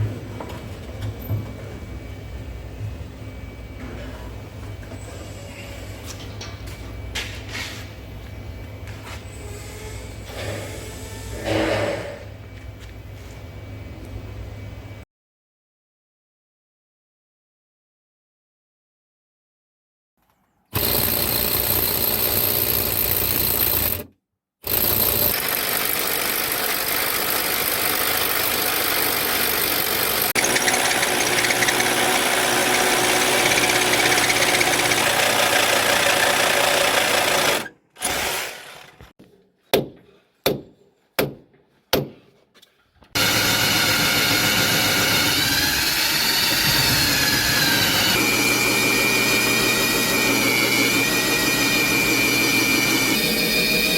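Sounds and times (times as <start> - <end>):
power tool running: 20.8 - 39.1, 43.2 - 53.9.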